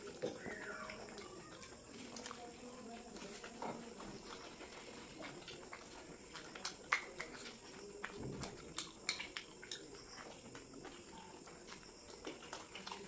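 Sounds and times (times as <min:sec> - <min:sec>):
people chewing food: 0:00.0 - 0:13.0
wet mouth clicks and smacks: 0:05.2 - 0:11.0.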